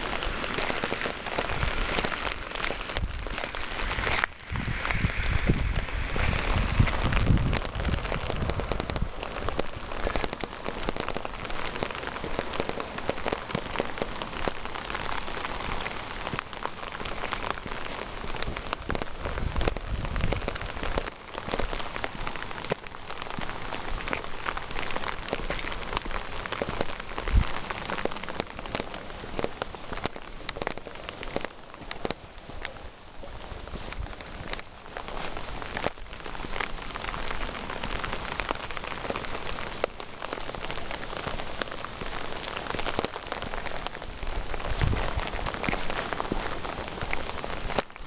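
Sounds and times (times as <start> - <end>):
low rumbles: 0.0 - 9.8
steady rain falling: 0.0 - 48.0.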